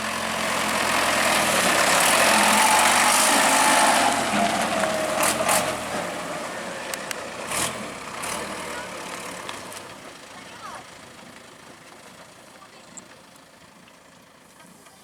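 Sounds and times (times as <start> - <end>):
heavy machinery engine under load: 0.0 - 15.0.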